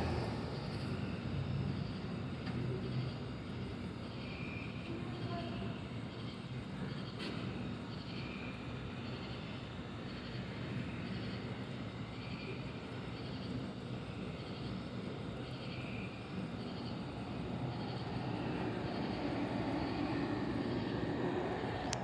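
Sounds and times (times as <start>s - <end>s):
distant thunder rumbling: 0.0s - 1.3s, 16.1s - 22.0s.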